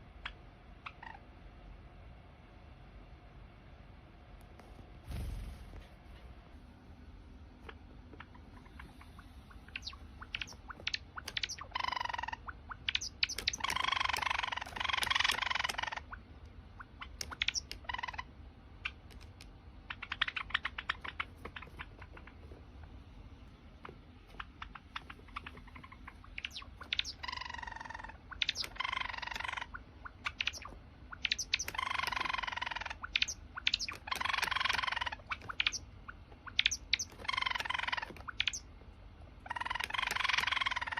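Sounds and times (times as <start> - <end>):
sparrow singing: 7.7 - 22.7, 23.7 - 38.8, 39.4 - 40.9.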